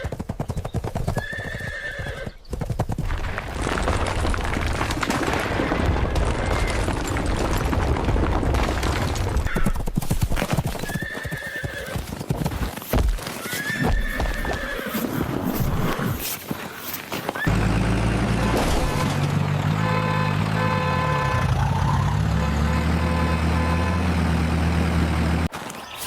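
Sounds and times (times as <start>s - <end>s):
horse hoofbeats clip-clopping: 0.0s - 17.5s
horse neighing: 13.4s - 16.2s.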